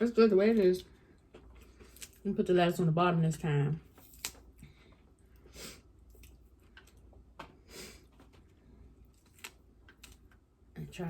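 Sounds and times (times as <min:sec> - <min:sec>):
crisp food crackling: 0:08.0 - 0:10.4.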